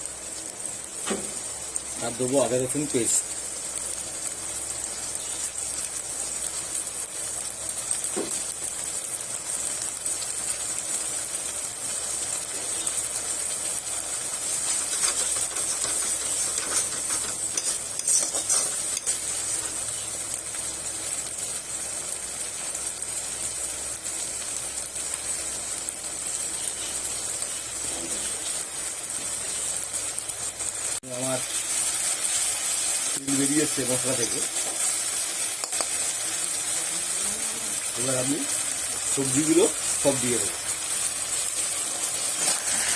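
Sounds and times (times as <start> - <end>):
paste frying in hot oil: 0.0 - 42.9
spatula strokes in pan: 12.7 - 20.1, 26.3 - 29.9, 39.1 - 42.9.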